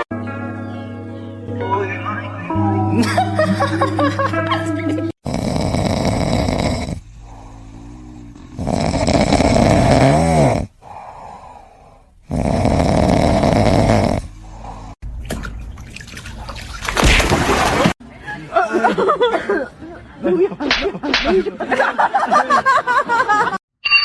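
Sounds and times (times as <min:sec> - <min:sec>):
animal snoring: 0:05.2 - 0:15.0.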